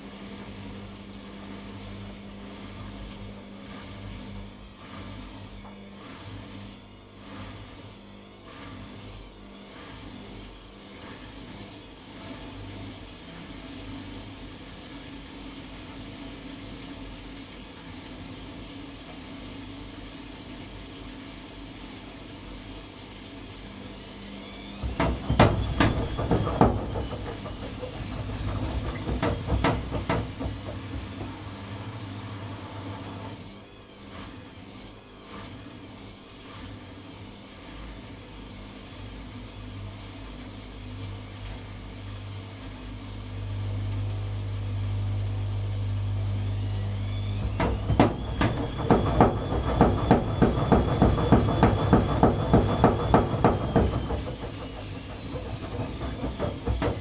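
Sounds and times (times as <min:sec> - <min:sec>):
washing machine motor hum: 0:23.5 - 0:33.6, 0:40.0 - 0:57.0
drum knocking and swishing: 0:24.8 - 0:32.1, 0:47.3 - 0:57.0.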